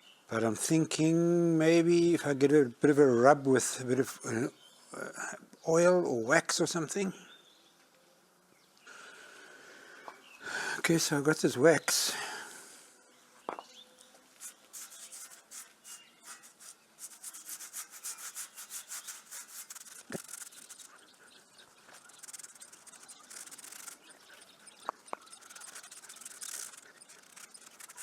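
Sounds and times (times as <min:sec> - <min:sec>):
wax rubbing on cast iron: 0:14.4 - 0:28.0.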